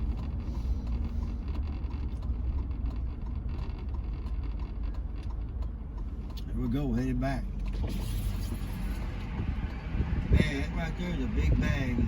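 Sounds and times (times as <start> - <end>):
engine and tyre road noise: 0.0 - 12.0.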